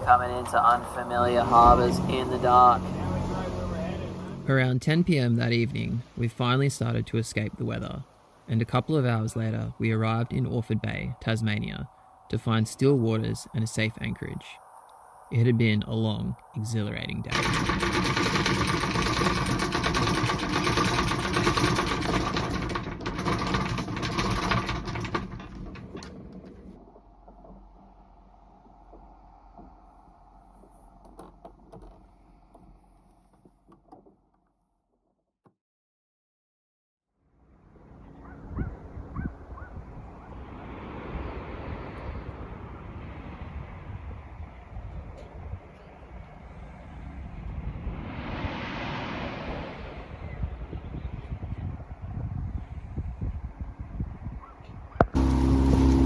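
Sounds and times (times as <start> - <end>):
steady hum: 0.0 - 18.8, 55.2 - 56.0
rapid mechanical clatter: 17.3 - 34.2, 55.0 - 56.0
wind buffeting microphone: 38.2 - 56.0.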